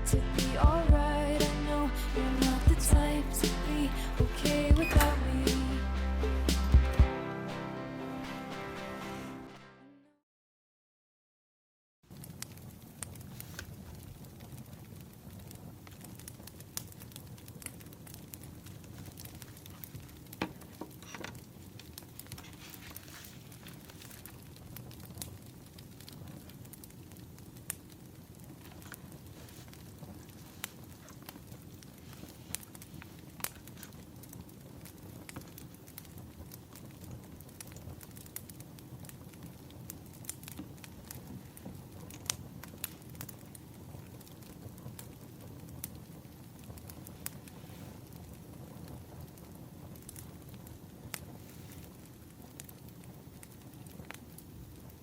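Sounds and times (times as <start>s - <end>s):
firewood crackling and popping: 12.1s - 55.0s
low rushing of flames: 12.1s - 55.0s.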